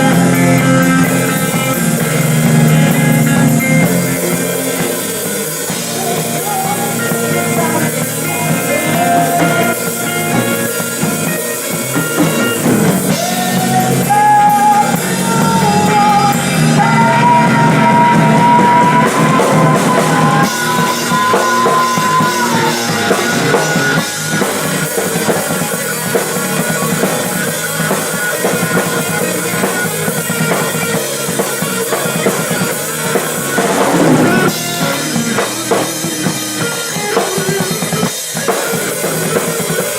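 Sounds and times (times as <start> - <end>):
rock band playing: 0.0 - 39.9
person singing: 3.4 - 24.0, 33.6 - 38.1.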